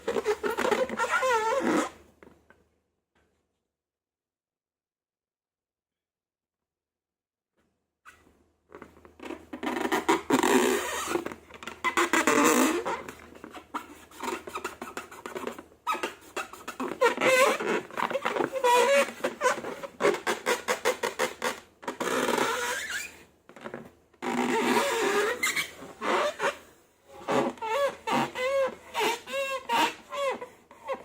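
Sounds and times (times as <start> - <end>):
slime squeaks: 0.0 - 1.9, 11.8 - 23.2, 24.2 - 26.6, 27.2 - 31.0.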